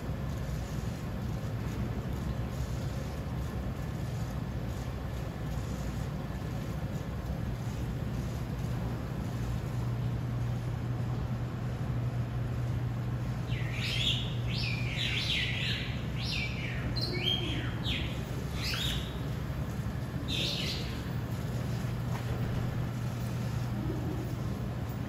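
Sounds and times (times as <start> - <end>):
steady low hum: 0.0 - 25.0
bird chirping: 13.5 - 19.4, 20.2 - 21.2.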